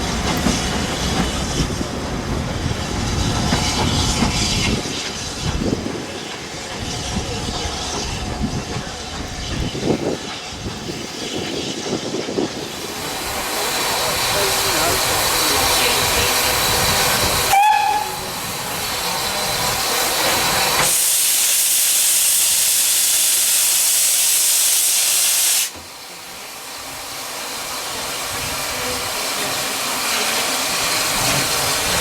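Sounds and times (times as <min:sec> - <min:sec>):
loud high steam hiss: 0:00.0 - 0:32.0
steam locomotive running: 0:00.0 - 0:32.0
steam whistle peep: 0:17.5 - 0:18.2.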